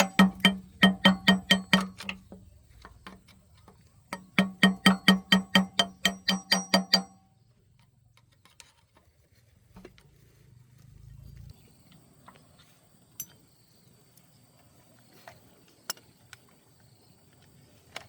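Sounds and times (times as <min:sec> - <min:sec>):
hammer blows on metal: 0:00.0 - 0:02.1, 0:04.1 - 0:07.2.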